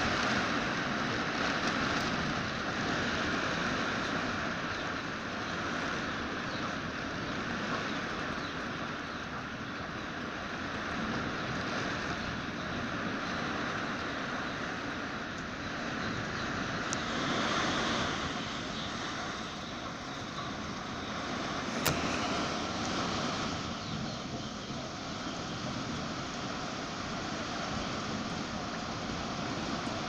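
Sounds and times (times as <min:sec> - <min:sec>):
strong wind with rain: 0:00.0 - 0:30.0
sharp click: 0:21.8 - 0:22.2.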